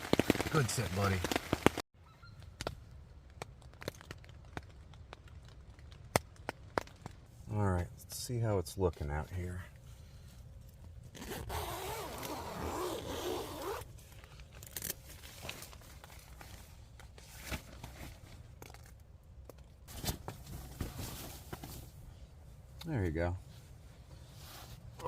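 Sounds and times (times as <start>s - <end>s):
rustles: 9.4s - 19.0s, 19.9s - 22.8s, 23.4s - 25.0s
tent zipper being pulled open: 11.1s - 13.9s.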